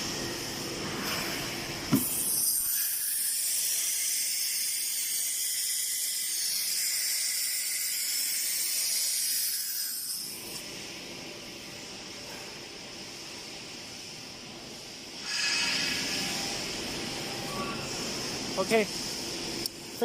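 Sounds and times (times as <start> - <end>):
compressed air hissing: 12.7 - 19.7.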